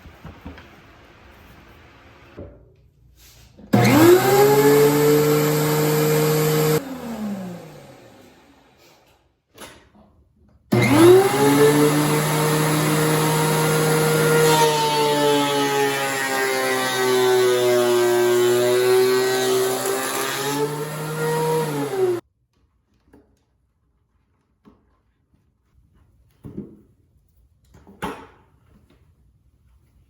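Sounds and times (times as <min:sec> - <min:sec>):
thickness planer motor whine: 0:03.8 - 0:08.8, 0:10.7 - 0:22.2.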